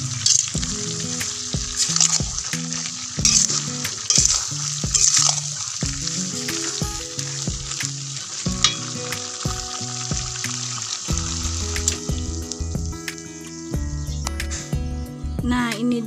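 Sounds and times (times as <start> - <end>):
food sizzling in a wok: 0.0 - 15.2
background music: 0.0 - 16.0.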